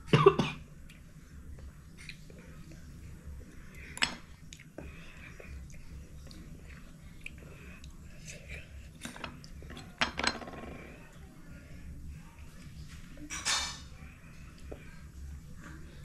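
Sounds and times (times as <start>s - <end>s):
person chewing wetly: 4.4s - 4.9s.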